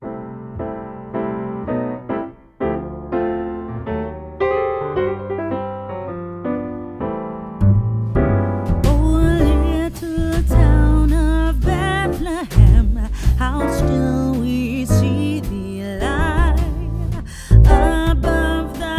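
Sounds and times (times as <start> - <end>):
electric piano chords: 0.0 - 18.9
bass and beat: 7.6 - 18.9
person singing: 8.9 - 18.9.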